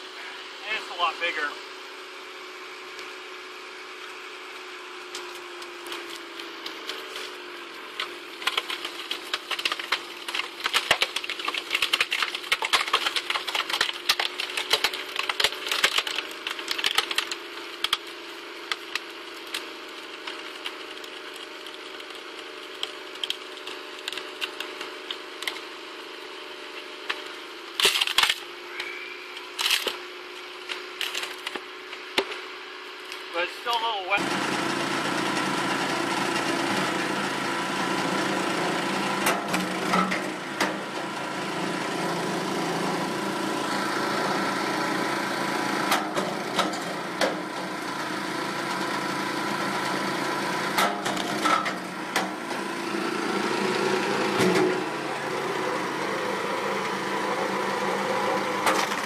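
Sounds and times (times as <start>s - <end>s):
car engine running: 0.0s - 59.0s
wood cracking and splintering: 5.1s - 32.4s, 45.0s - 59.0s.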